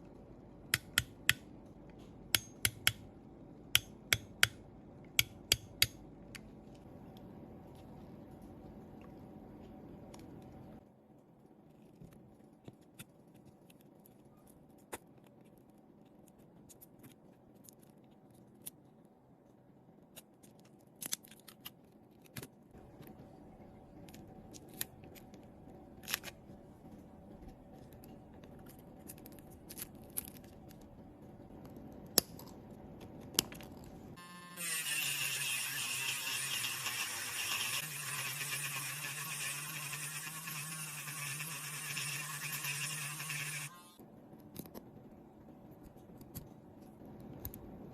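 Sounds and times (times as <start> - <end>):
small motor humming: 34.2 - 44.0.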